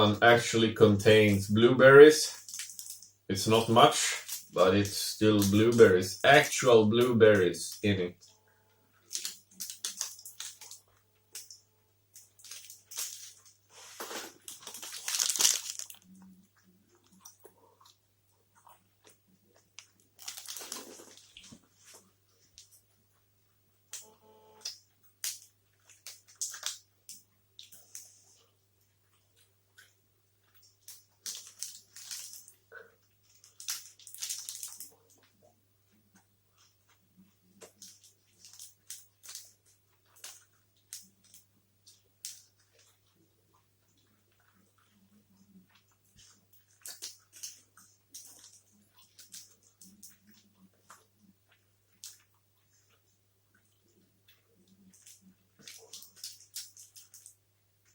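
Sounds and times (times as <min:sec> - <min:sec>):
chewing and mouth sounds: 0:12.2 - 0:23.2, 0:24.0 - 0:57.9.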